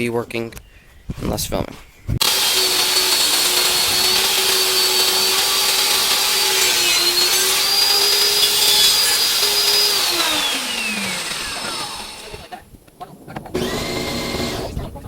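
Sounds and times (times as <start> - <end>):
electric motor whining: 2.2 - 12.5, 13.6 - 14.8.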